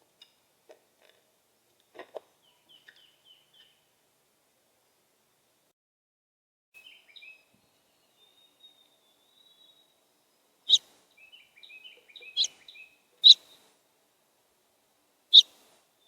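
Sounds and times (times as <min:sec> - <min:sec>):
songbirds chirping: 0:01.5 - 0:04.0, 0:06.8 - 0:16.0
loud sharp bird calls: 0:10.7 - 0:13.6, 0:15.3 - 0:15.5.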